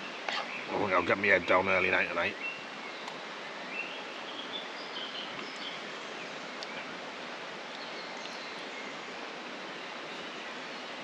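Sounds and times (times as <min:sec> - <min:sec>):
woodland rustling hiss: 0:00.0 - 0:11.0.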